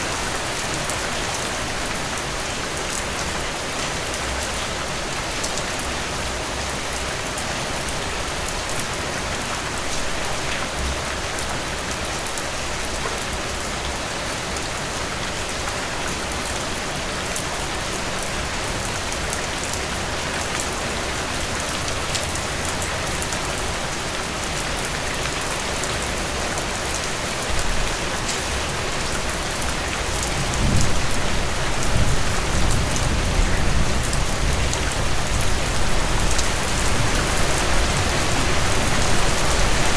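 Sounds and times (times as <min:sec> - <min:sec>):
heavy rain: 0:00.0 - 0:39.9
thunder rumbling: 0:30.3 - 0:37.2.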